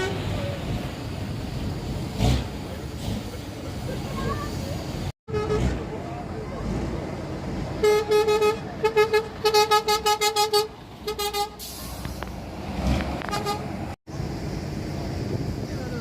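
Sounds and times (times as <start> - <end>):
truck horn short blasts: 5.3 - 5.8, 7.8 - 11.8, 13.2 - 13.7.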